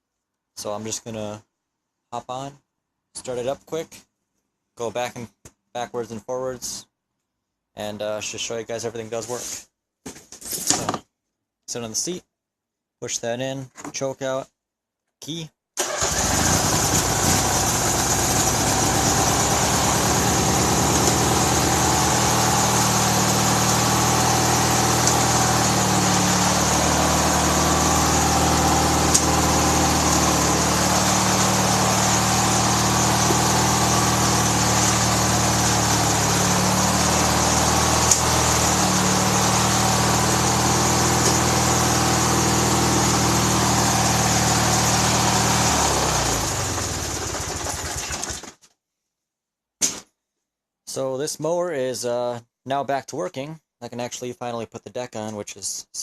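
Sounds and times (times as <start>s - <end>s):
small mower engine running: 15.8s - 48.5s.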